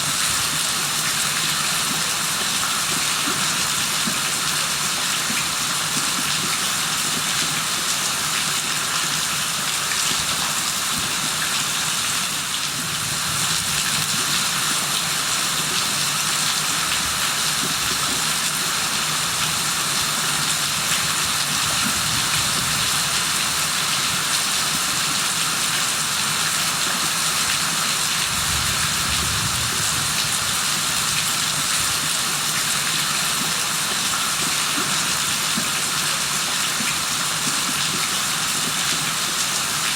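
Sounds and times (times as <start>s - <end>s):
heavy rain falling: 27.9s - 32.5s.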